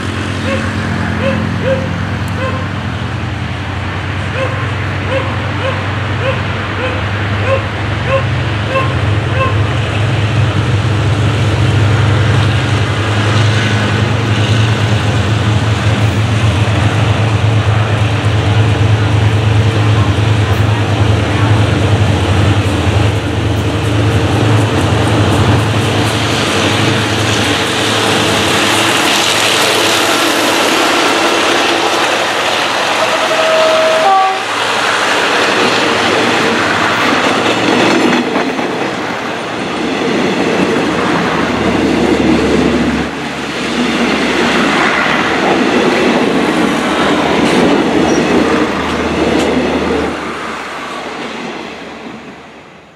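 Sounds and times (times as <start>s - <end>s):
diesel locomotive engine running: 0.0s - 52.9s
train wheels clicking over rail joints: 9.7s - 51.5s.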